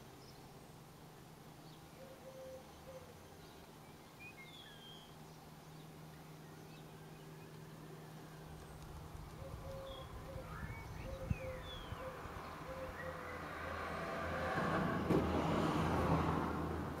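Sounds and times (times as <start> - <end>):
low steady hum: 0.0 - 13.4
faint birdsong: 0.0 - 15.2.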